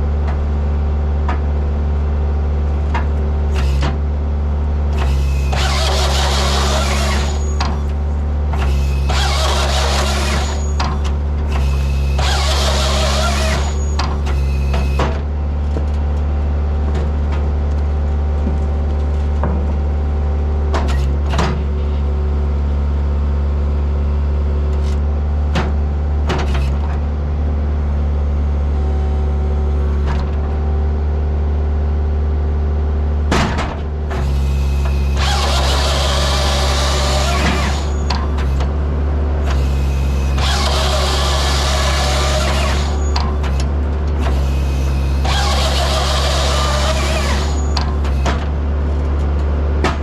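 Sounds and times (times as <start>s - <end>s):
diesel engine running: 0.0s - 50.0s
saw chain cutting logs: 5.0s - 15.0s, 34.2s - 38.7s, 39.4s - 48.4s.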